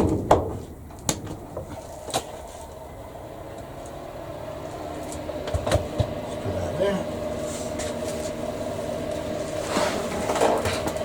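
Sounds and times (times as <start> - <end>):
electric heater humming: 0.7 - 11.0.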